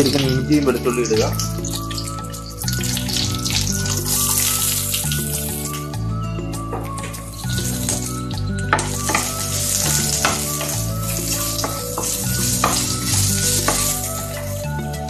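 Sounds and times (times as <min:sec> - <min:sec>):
aromatics sizzling in hot oil: 0:00.0 - 0:15.0
background music with bass line: 0:00.0 - 0:15.0
spatula stirring and tapping pan: 0:08.7 - 0:14.6.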